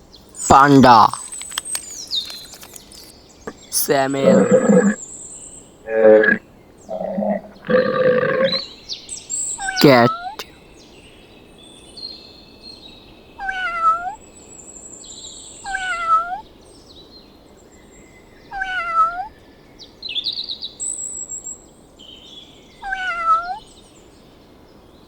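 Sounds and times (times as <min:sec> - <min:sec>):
small birds chirping faintly: 0:00.0 - 0:20.0
cat meowing: 0:13.4 - 0:14.2, 0:15.7 - 0:16.4, 0:18.6 - 0:19.3, 0:22.8 - 0:23.6.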